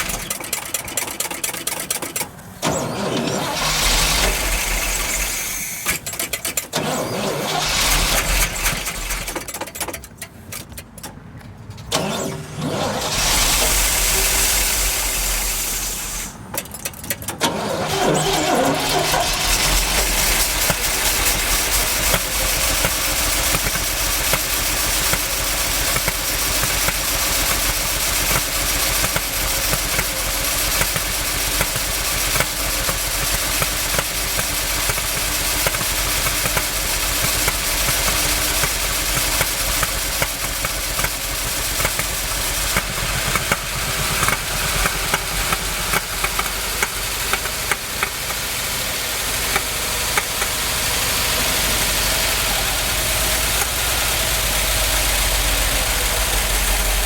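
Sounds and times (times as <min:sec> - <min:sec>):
engine backfiring pops: 0:00.0 - 0:57.0
truck engine running unevenly: 0:00.0 - 0:57.0.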